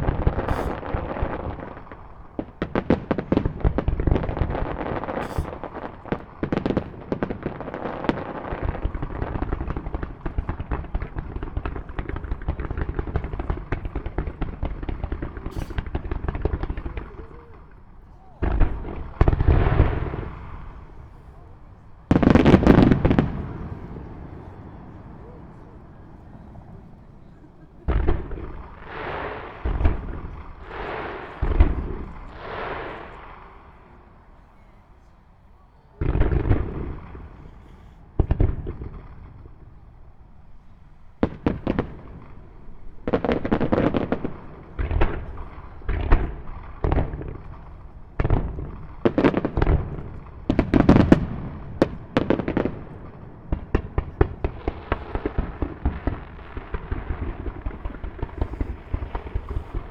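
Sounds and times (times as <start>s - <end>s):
fireworks bursting: 0.0s - 59.9s.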